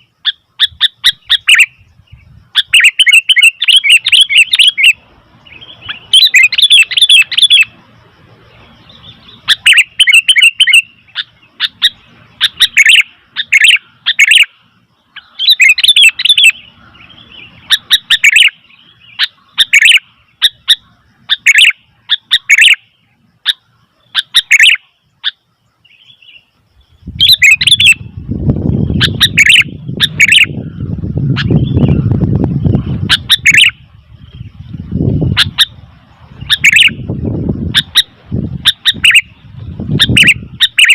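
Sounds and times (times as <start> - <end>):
bird chirping sharply: 0.0 - 7.8, 8.7 - 14.6.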